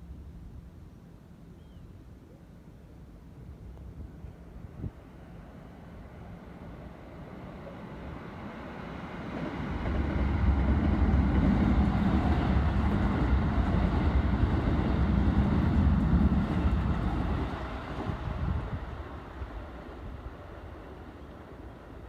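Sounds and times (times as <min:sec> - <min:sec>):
train wheels rumbling on rails: 0:07.4 - 0:22.0.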